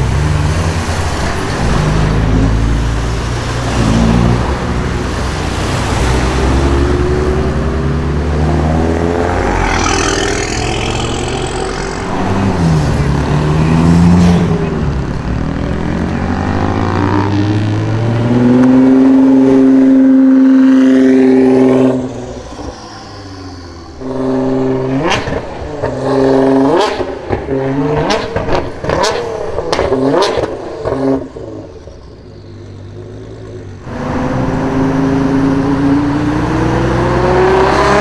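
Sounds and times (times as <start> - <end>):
car engines idling and revving: 0.0 - 38.0
high whine: 7.5 - 18.0.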